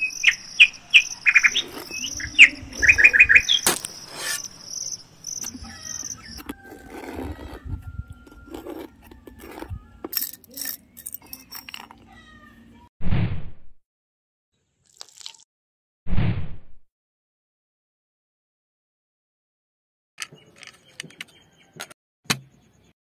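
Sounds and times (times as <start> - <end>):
birds chirping: 0.0 - 8.9, 20.2 - 23.0
metal blade scraping cement powder: 3.7 - 4.5, 6.4 - 12.0.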